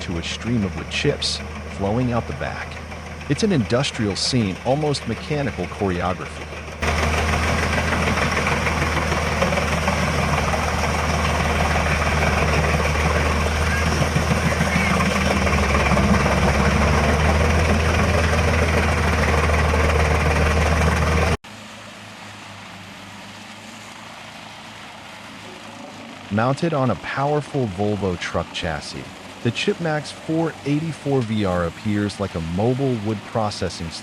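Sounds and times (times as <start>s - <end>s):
machine hum: 0.0s - 21.4s
wood chipper grinding logs: 0.0s - 22.4s.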